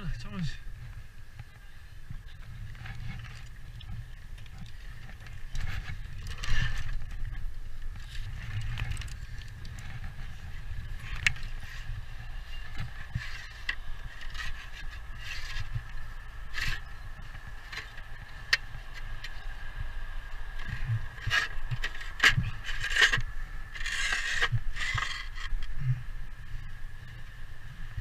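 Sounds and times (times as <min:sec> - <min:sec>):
hand tools scraping roof slates: 0:23.8 - 0:25.4.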